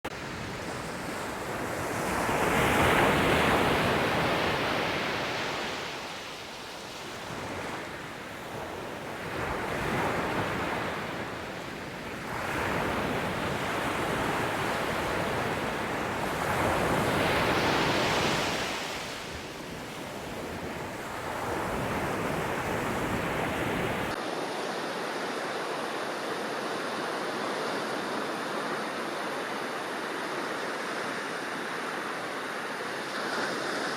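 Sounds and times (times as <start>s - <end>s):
sea waves breaking: 0.2s - 24.2s.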